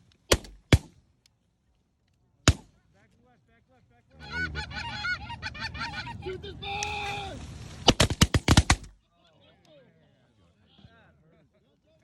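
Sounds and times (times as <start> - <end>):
shotgun shots: 0.3 - 1.0, 2.5 - 2.8, 7.8 - 9.0
geese honking: 4.1 - 7.2.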